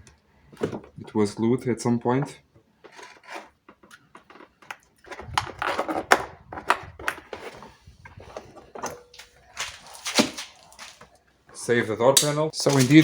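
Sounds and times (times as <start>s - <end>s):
scraping and rustling: 2.8s - 11.2s, 12.6s - 13.0s.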